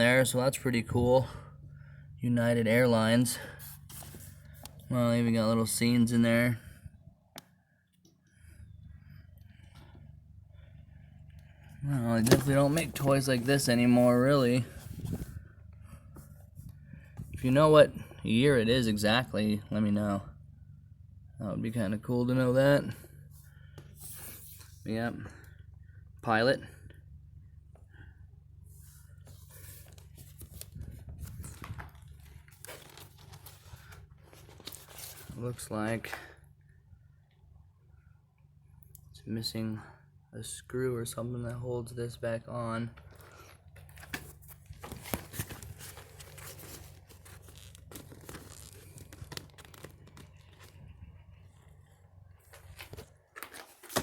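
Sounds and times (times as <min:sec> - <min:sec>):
steady low hum: 0:00.0 - 0:53.4
plastic toy rustling and crinkling: 0:29.3 - 0:35.4, 0:43.1 - 0:50.9.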